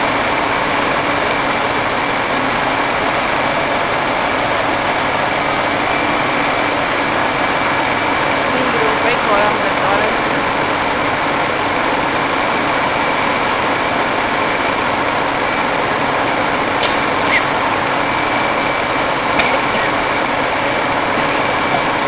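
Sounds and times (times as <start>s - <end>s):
engine running: 0.0s - 22.0s
faint high whine: 0.0s - 22.0s.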